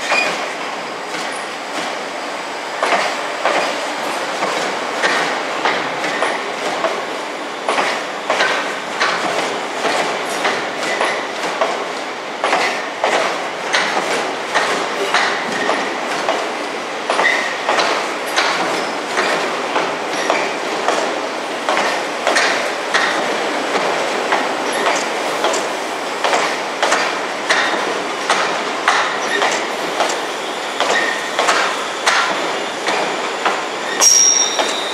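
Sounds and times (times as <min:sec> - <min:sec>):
train wheels clacking over rail joints: 0:00.0 - 0:02.1, 0:02.8 - 0:34.9
wheel squeals: 0:33.8 - 0:34.9.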